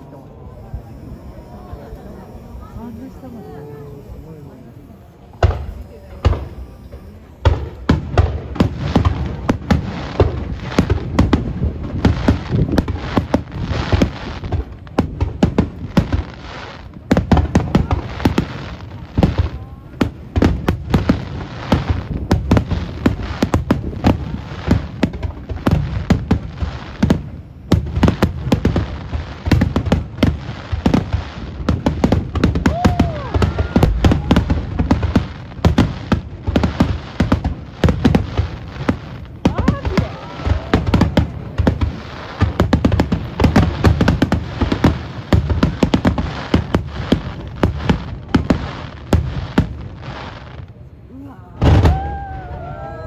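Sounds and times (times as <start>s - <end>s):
fireworks booming and crackling: 0.0s - 53.0s.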